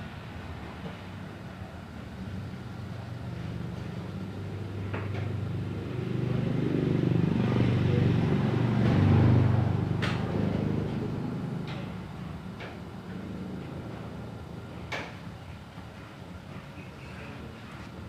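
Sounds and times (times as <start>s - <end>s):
vehicle engine passing by: 3.2s - 12.5s.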